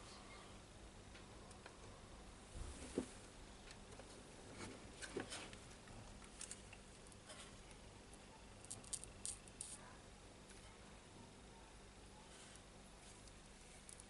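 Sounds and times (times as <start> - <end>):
small tools ticking and tapping: 6.2 - 9.8.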